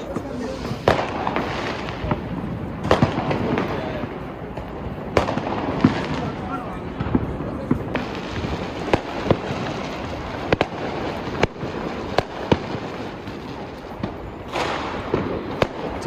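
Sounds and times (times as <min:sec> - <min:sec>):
distant crackling and popping: 0:00.0 - 0:16.0
firework bangs: 0:00.0 - 0:16.0
hissing crackle: 0:00.0 - 0:16.0.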